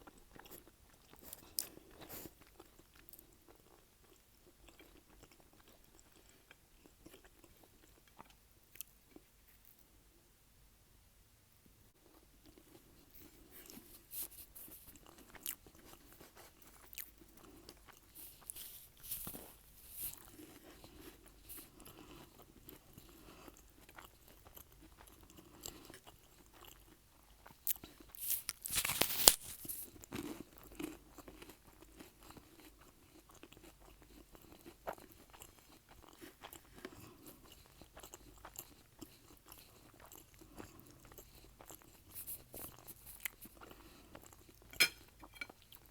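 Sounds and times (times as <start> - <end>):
chewing and biting: 12.4 - 45.9
crunching of toasted bread: 12.5 - 45.9.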